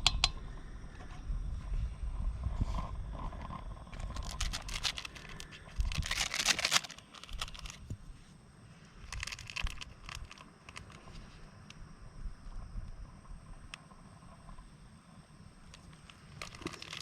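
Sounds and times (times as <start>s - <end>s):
plastic packet ripping open: 4.0s - 7.8s, 9.1s - 11.0s, 16.3s - 17.0s
plastic packet crinkling: 4.0s - 7.9s, 9.1s - 11.0s, 15.8s - 17.0s.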